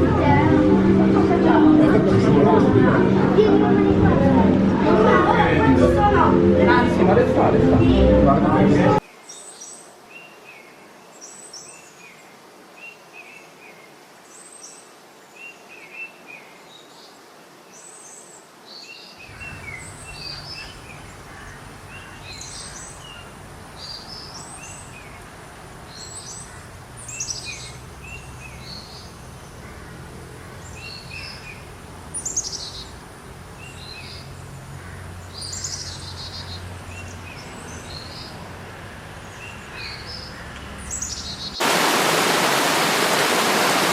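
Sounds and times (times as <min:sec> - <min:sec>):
birds chirping and calling: 0:19.2 - 0:33.0, 0:33.6 - 0:38.4.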